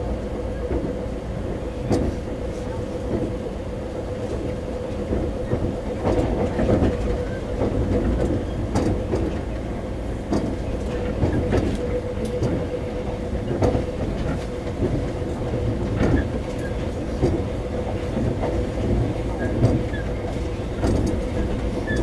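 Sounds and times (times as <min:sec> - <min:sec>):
train interior rumble: 0:00.0 - 0:22.0.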